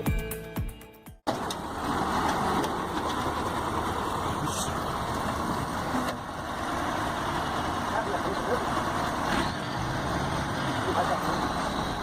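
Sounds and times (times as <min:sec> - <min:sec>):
music: 0:00.0 - 0:01.2
heavy vehicle engine running: 0:01.3 - 0:12.0.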